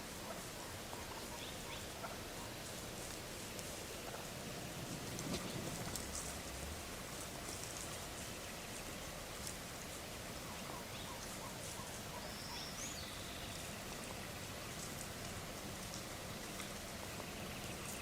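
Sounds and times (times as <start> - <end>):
light rain hiss: 0.0 - 18.0
bird call: 10.5 - 13.7.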